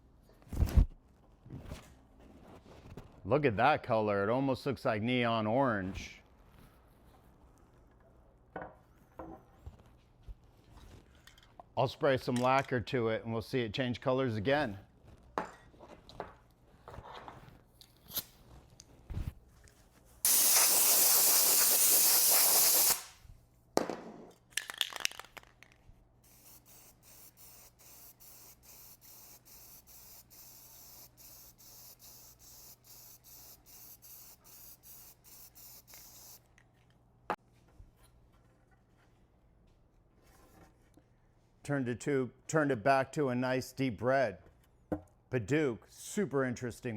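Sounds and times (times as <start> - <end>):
knocks and handling noise: 8.5 - 11.7
lacquer spray hissing: 20.3 - 23.2, 26.2 - 36.4
pulsing spray hiss: 20.3 - 23.2.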